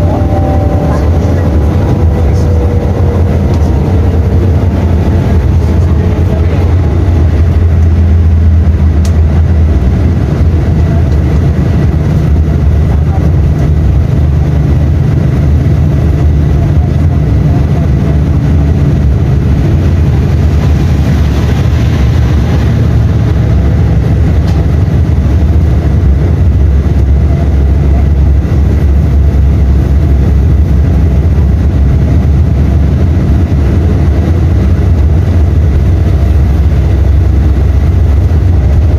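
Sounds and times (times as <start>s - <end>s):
bus diesel engine droning: 0.0s - 38.9s.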